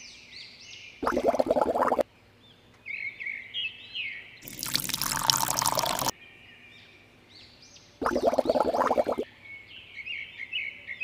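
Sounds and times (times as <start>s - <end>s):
water pouring into tub: 1.0s - 2.0s, 4.5s - 6.1s, 8.0s - 9.2s.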